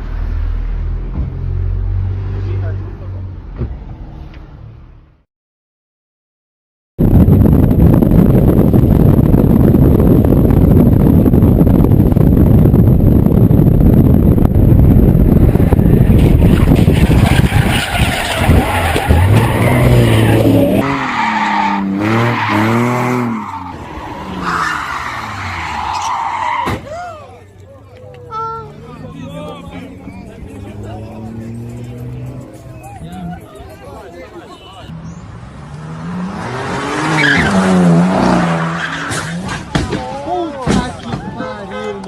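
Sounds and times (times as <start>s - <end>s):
engine and tyre noise: 0.0s - 5.2s, 7.0s - 42.0s
engine revving: 18.0s - 24.5s, 28.6s - 33.4s, 35.2s - 39.5s.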